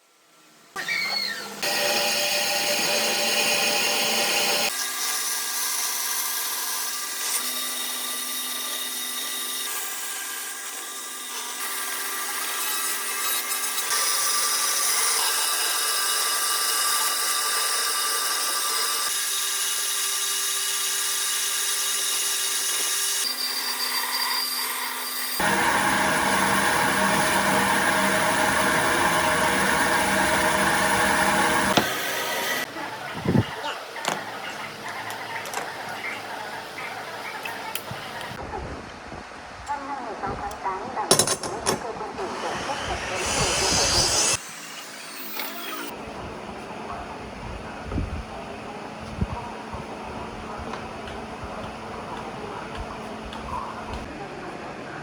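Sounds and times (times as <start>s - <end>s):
power tool cutting wood: 0.8s - 32.7s, 42.2s - 46.0s.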